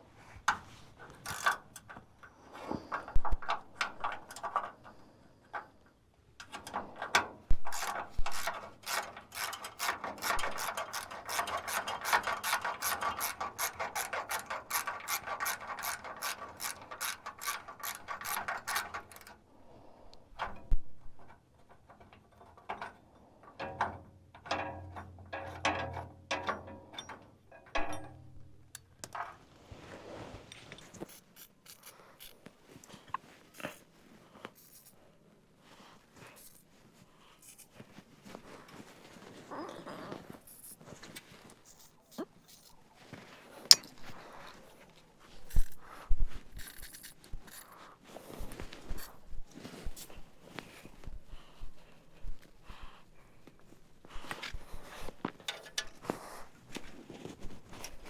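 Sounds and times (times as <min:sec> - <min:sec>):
ratchet wrench clicking: 0:01.2 - 0:01.9, 0:07.7 - 0:19.3, 0:31.1 - 0:32.4, 0:45.5 - 0:45.8, 0:46.6 - 0:47.7.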